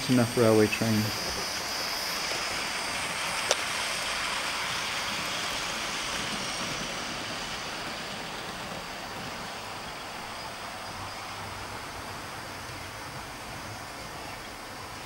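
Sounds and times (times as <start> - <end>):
model train wheels on track: 0.0 - 15.0.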